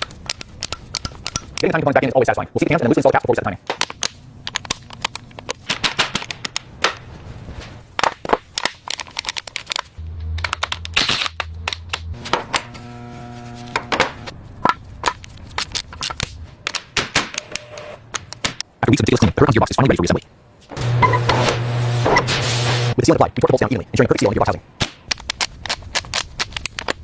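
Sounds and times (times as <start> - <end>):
low hum: 10.0 - 14.6, 20.8 - 23.0.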